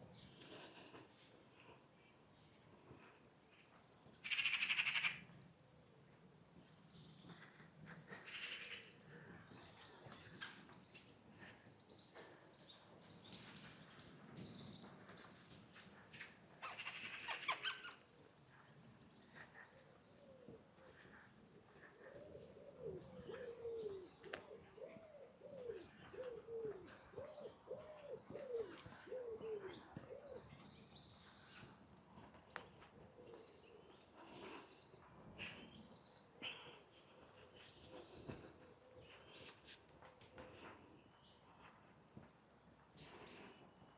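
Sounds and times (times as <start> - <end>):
small birds chirping: 0.0 - 43.9
pigeon cooing: 20.3 - 30.6.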